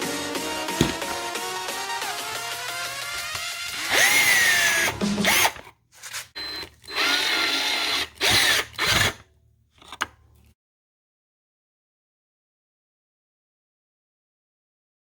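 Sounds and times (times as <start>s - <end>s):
power drill whining: 3.2s - 5.7s, 6.4s - 9.2s.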